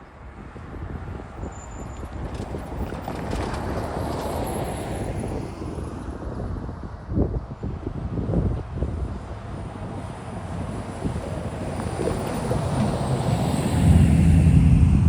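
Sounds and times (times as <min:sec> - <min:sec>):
freight train rumbling past: 0:09.7 - 0:15.0.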